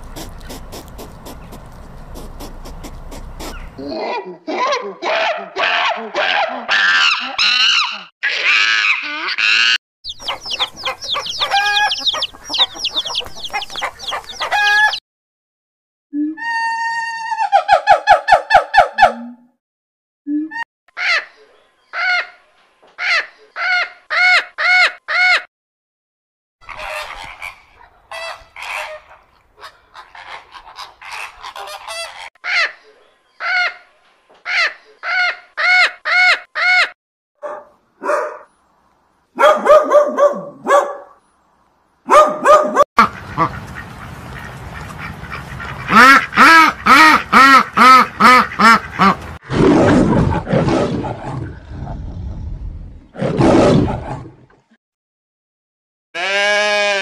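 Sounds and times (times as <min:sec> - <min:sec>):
parrots squawking: 0:06.7 - 0:15.0
low rough growl: 0:49.4 - 0:54.5.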